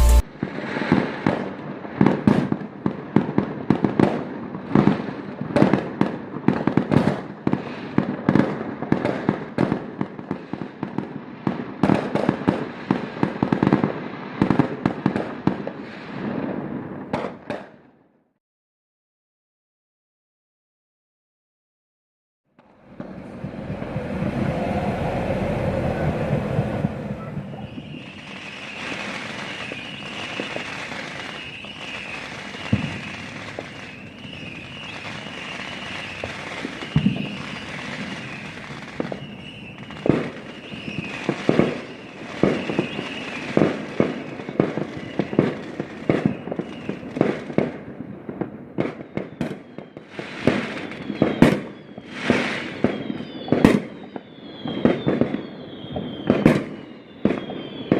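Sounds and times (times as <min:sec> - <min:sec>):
fireworks hissing: 0:00.0 - 0:01.0, 0:22.7 - 0:47.2, 0:52.0 - 0:53.0
firework bangs: 0:00.0 - 0:17.9, 0:22.6 - 0:57.9
fireworks rushing: 0:00.0 - 0:18.0, 0:22.6 - 0:57.9.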